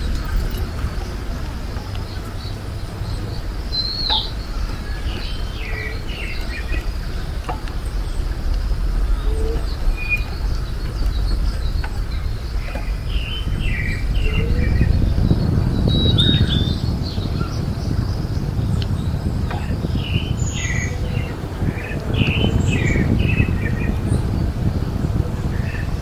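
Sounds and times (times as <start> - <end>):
low rumble: 0.0 - 26.0
wild birds chirping: 0.0 - 26.0.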